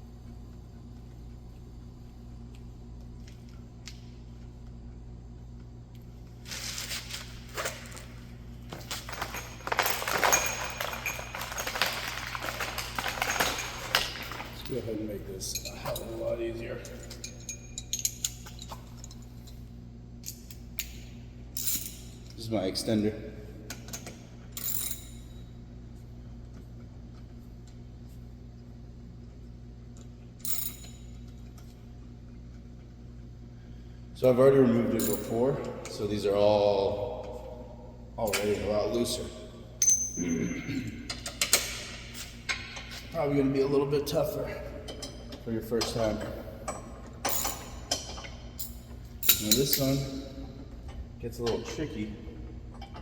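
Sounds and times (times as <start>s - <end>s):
steady low hum: 0.0s - 53.0s
tools clinking against metal: 8.7s - 19.6s, 23.8s - 25.4s, 30.4s - 31.6s, 35.0s - 36.0s, 39.8s - 43.1s, 44.8s - 50.5s.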